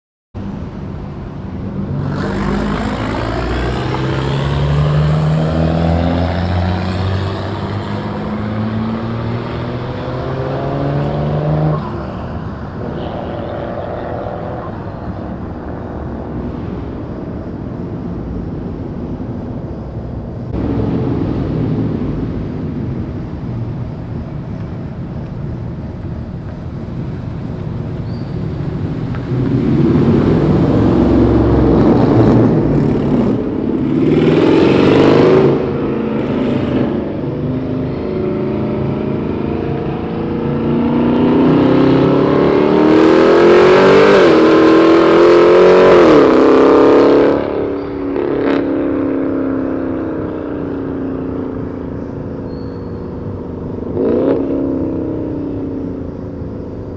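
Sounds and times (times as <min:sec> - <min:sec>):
loud car exhaust accelerating: 0:00.6 - 0:24.6, 0:25.8 - 0:52.1.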